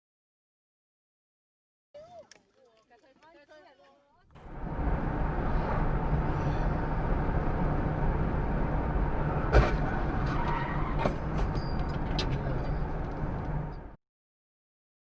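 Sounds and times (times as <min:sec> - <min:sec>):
car road and engine noise: 0:04.3 - 0:14.0.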